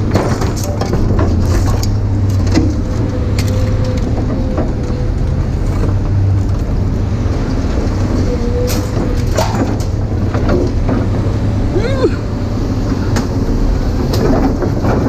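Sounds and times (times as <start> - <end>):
sharp metallic clicks and knocks: 0.0 - 6.7
vehicle engine humming: 0.0 - 15.0.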